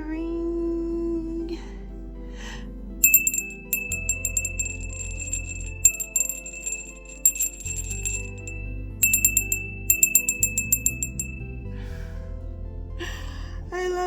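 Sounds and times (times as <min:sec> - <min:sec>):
soft background music: 0:00.0 - 0:14.0
small bell tinkling: 0:03.0 - 0:11.6.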